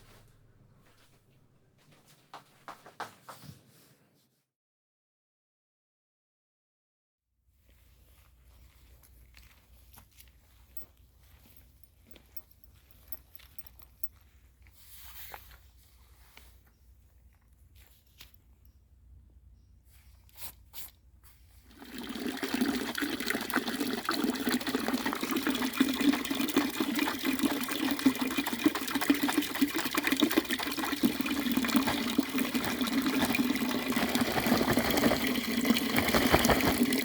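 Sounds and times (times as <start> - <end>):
water pouring onto rain jacket: 21.6 - 37.0.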